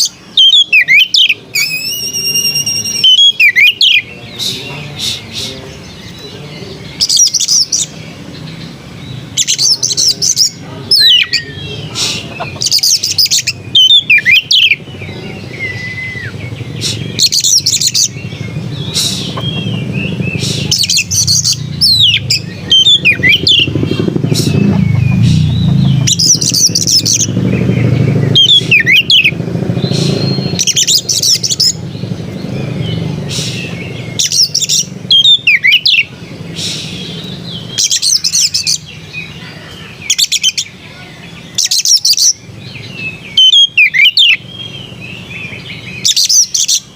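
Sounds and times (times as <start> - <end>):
magpie-robin singing: 0.0 - 46.9
steady low rumble: 14.8 - 35.1.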